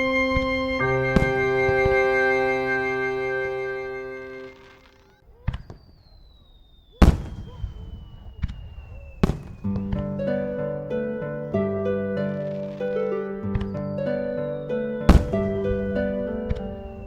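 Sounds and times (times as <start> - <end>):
harp-like music: 0.0 - 4.9, 9.8 - 17.0
organ-like music: 0.0 - 5.1, 9.6 - 17.0
faint high falling tone: 0.0 - 5.2
fireworks bursting with bangs: 4.6 - 10.2, 15.1 - 17.0.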